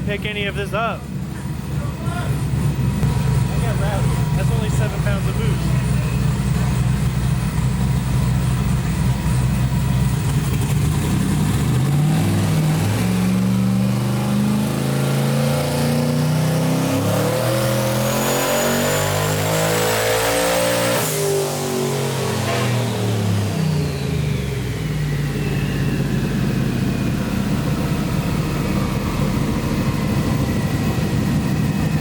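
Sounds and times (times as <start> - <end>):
engine revving under load: 0.0 - 32.0
high turbo whistle: 22.2 - 27.0.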